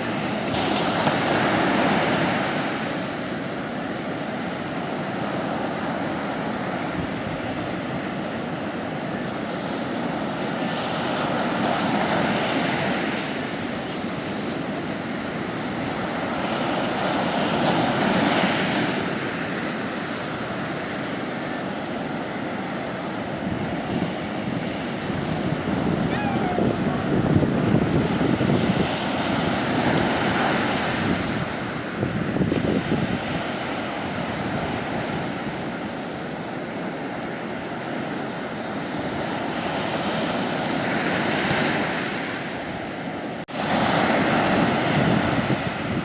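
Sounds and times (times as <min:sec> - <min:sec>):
sea waves breaking on beach: 0:00.0 - 0:46.0.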